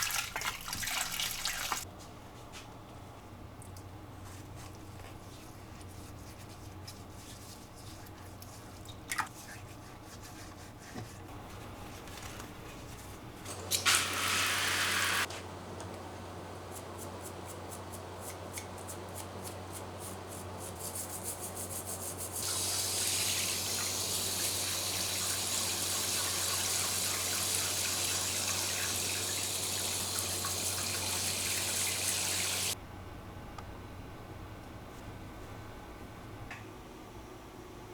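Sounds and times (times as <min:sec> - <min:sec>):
tap water hissing: 0:00.0 - 0:01.9, 0:13.6 - 0:15.3, 0:22.4 - 0:32.8
low steady hum: 0:32.7 - 0:37.9.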